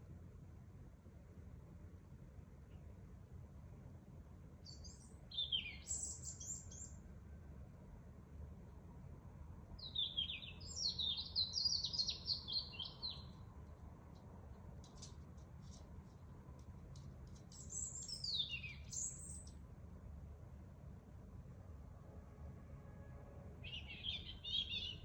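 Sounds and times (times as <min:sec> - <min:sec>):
songbird singing: 0:04.6 - 0:07.1, 0:09.8 - 0:19.7, 0:23.6 - 0:25.0.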